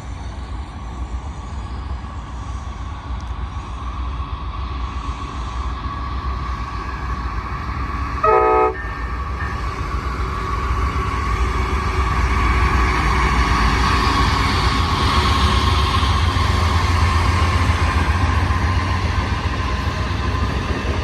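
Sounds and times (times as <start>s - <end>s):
train rumbling: 0.0s - 21.0s
train horn blast: 8.2s - 9.6s.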